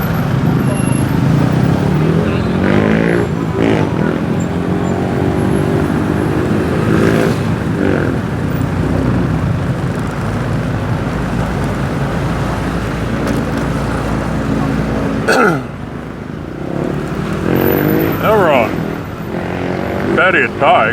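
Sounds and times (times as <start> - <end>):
motorbike engine running: 0.0 - 20.5
street traffic noise: 0.0 - 20.9.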